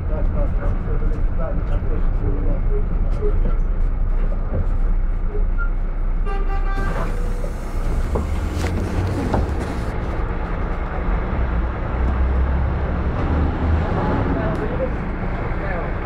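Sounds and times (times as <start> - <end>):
engine rumble: 0.0 - 16.0
passing traffic: 0.0 - 16.0
brake pads squealing: 6.8 - 10.2.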